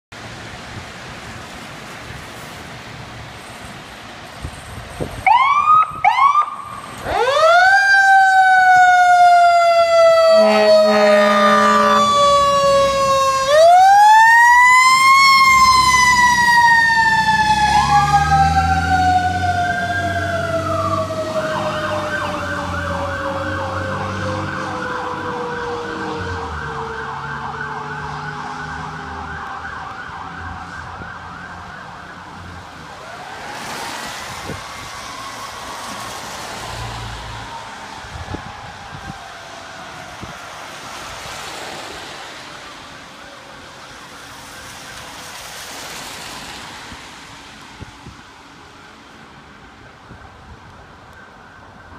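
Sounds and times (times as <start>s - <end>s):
fire engine siren wailing: 5.1s - 46.9s, 47.8s - 51.9s
rapid warbling siren: 5.3s - 36.4s
horn blast: 10.3s - 12.2s.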